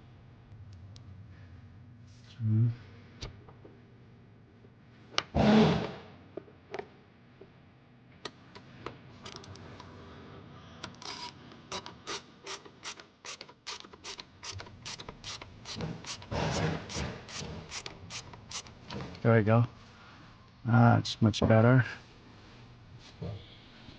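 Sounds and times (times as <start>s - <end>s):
ratchet wrench clicking: 12.5s - 16.3s, 17.3s - 18.7s.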